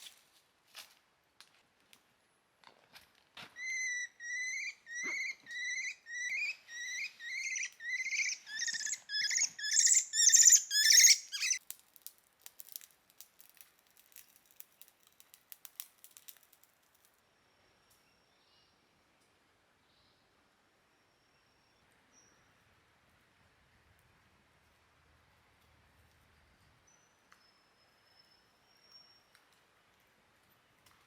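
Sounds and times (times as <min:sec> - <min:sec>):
animal squeaky calls: 0:03.6 - 0:11.6.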